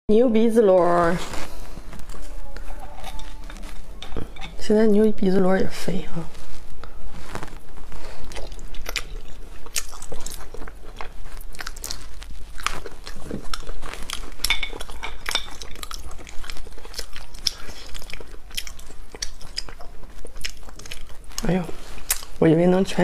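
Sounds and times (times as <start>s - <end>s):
person chewing wet mouth clicks: 8.3s - 12.0s, 12.6s - 22.3s.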